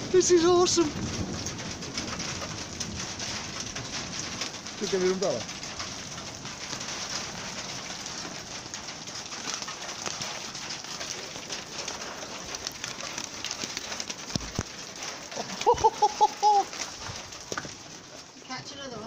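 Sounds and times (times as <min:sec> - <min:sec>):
rain and hail pattering: 0:00.0 - 0:19.0.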